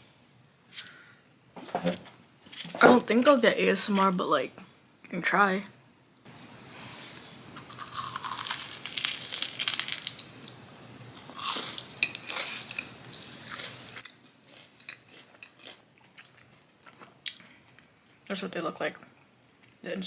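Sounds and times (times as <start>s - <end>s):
crunching and chewing: 7.6s - 10.6s, 11.2s - 17.9s.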